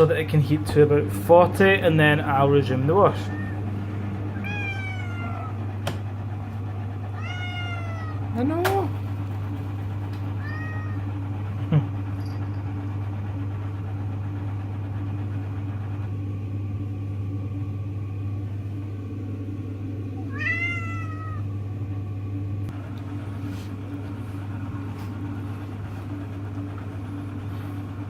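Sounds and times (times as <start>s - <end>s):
washing machine humming: 0.0s - 28.0s
cat meowing: 3.2s - 3.6s, 4.3s - 5.6s, 7.2s - 8.2s, 10.4s - 11.0s, 20.2s - 21.5s.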